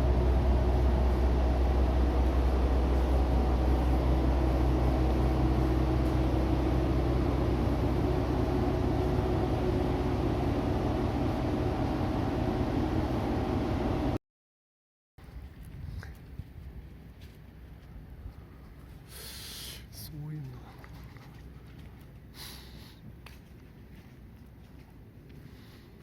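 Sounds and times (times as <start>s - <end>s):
diesel engine idling: 0.0s - 14.2s.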